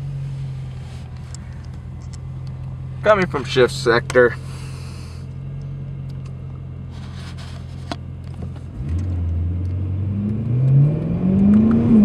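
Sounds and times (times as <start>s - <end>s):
car engine revving and accelerating: 8.5s - 12.0s.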